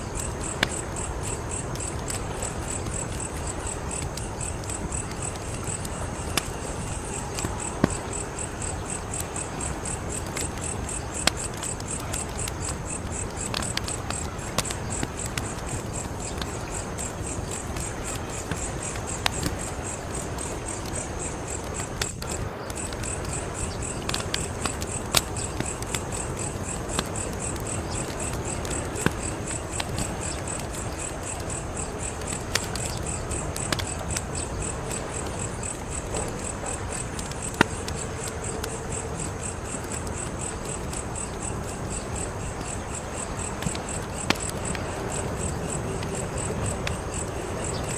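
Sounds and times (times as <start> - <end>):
wood fire crackling: 0.0 - 47.9.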